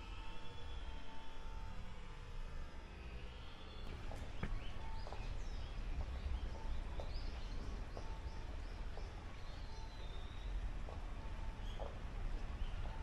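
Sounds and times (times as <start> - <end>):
low background rumble: 0.0 - 13.0
small birds chirping: 11.6 - 13.0.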